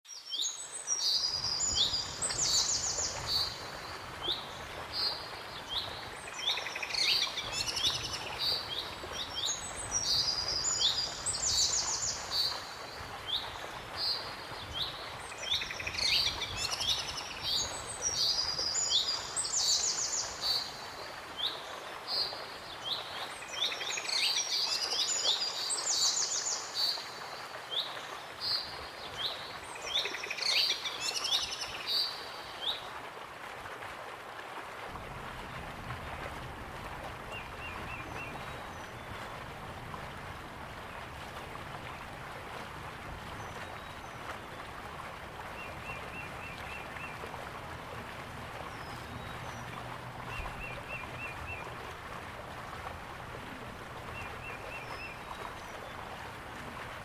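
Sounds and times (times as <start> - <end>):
songbirds singing: 0.1 - 32.8
waterfall rushing: 34.8 - 57.0.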